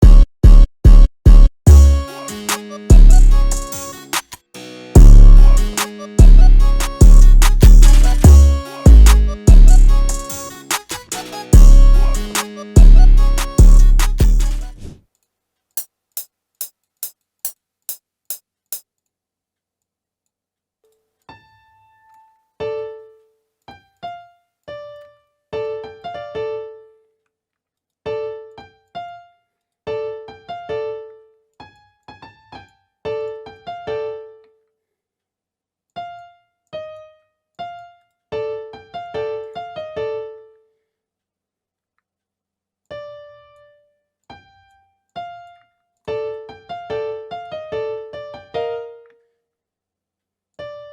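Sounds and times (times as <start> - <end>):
keyboard piano notes: 1.7 - 14.8, 21.4 - 27.0, 28.1 - 29.3, 29.9 - 34.4, 36.0 - 40.5, 44.3 - 49.2.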